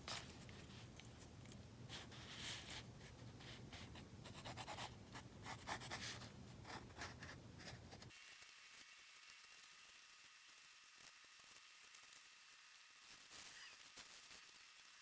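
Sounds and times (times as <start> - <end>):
pencil scratching on paper: 3.5 - 8.1.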